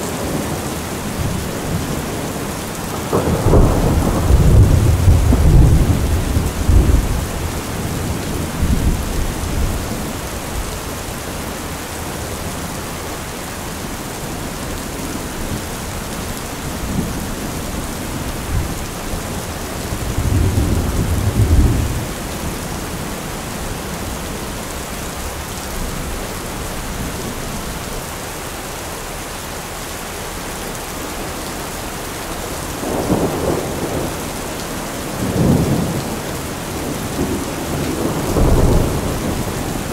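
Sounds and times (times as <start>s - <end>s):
steady rain falling: 0.0s - 39.9s
thunder rumbling: 0.1s - 13.1s, 13.8s - 28.1s, 31.2s - 39.9s.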